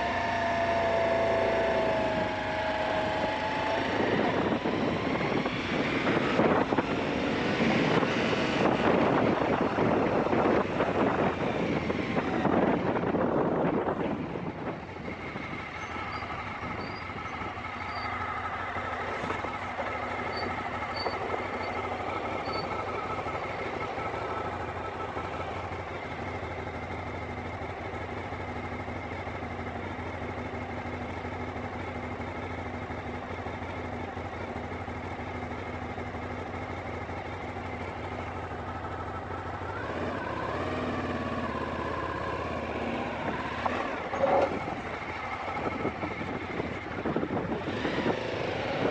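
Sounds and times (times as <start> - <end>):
motorcycle engine running: 0.0 - 48.9
wind noise on microphone: 1.8 - 15.6, 41.7 - 48.9.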